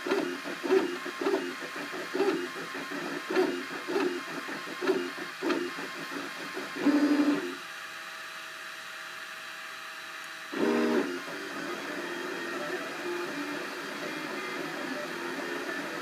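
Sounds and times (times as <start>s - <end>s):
printer stepper motors: 0.0s - 7.6s, 10.1s - 16.0s.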